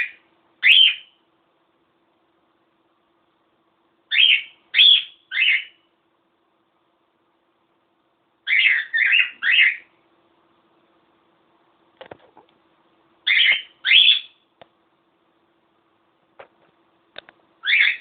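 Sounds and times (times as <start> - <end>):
cockatiel chirping: 0.0 - 1.2, 4.1 - 5.8, 8.4 - 9.9, 13.2 - 14.4, 17.6 - 18.0.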